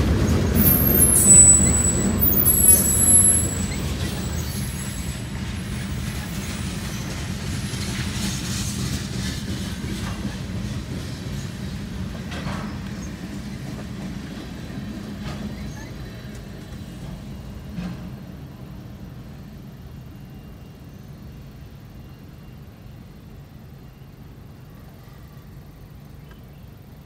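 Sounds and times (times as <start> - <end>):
train wheels rumbling on rail: 0.0 - 27.0
high wheel squeal: 0.6 - 7.9.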